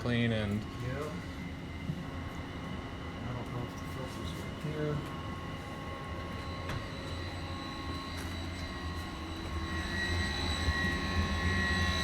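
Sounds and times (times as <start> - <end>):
ventilation fans droning: 0.0 - 12.0.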